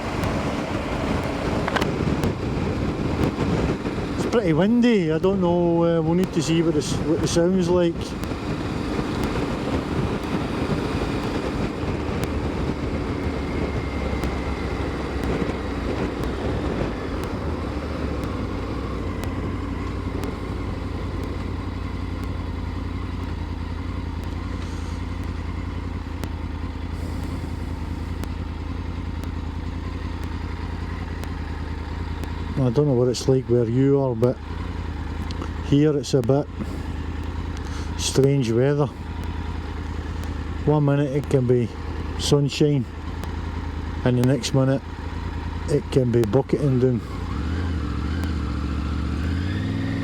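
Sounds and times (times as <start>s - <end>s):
wind rushing over microphone: 0.0s - 21.6s
motorcycle engine cruising: 0.0s - 50.0s.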